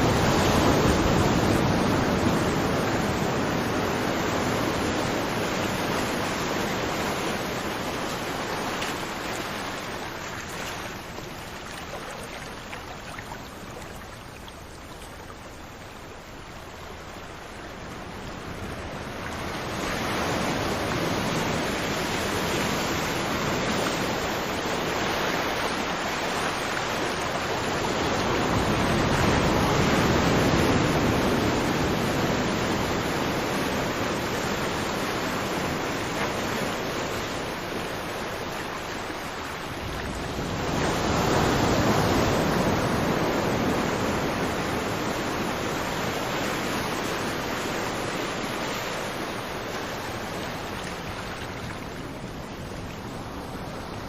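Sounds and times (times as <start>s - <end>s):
ocean waves washing onto beach: 0.0s - 54.0s.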